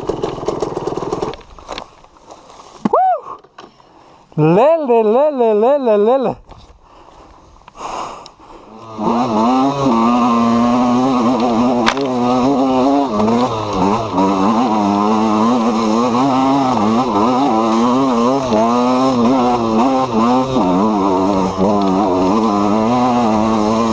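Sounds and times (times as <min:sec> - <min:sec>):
two-stroke motorcycle engine revving: 0:00.0 - 0:01.4, 0:08.7 - 0:23.9.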